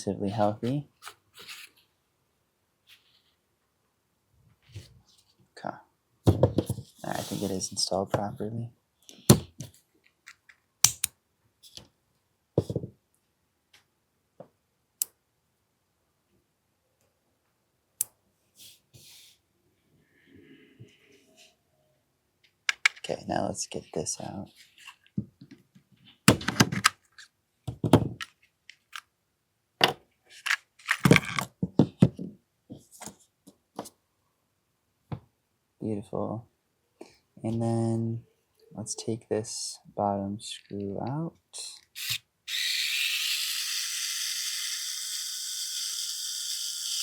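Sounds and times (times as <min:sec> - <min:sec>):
small gun parts clicking and scraping: 0:22.7 - 0:23.1, 0:26.4 - 0:27.3, 0:28.2 - 0:29.1, 0:30.3 - 0:31.5.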